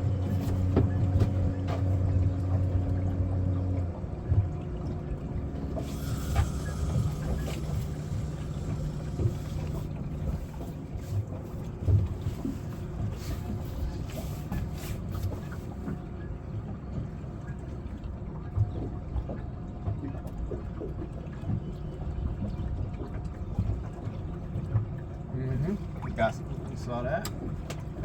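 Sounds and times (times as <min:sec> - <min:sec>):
knocks on boat: 0:00.0 - 0:02.7, 0:05.7 - 0:12.5
boat motor humming: 0:00.0 - 0:28.0.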